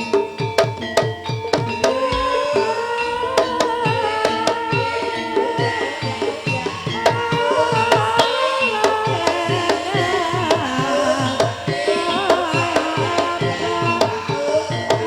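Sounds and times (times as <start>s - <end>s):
wavering melody line: 0.0s - 15.0s
hand drums playing quick strokes: 1.8s - 3.8s.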